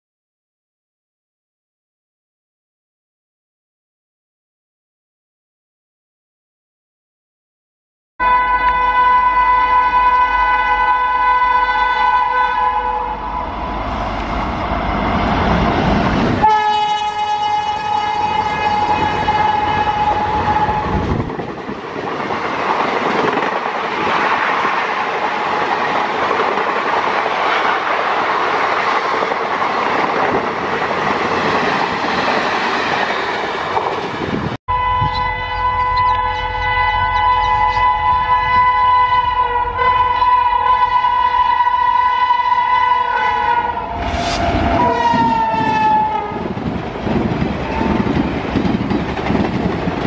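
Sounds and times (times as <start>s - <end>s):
electric locomotive horn: 8.2s - 13.8s, 16.4s - 21.1s, 34.7s - 46.5s
train coaches clattering past: 13.2s - 38.7s, 42.2s - 50.0s.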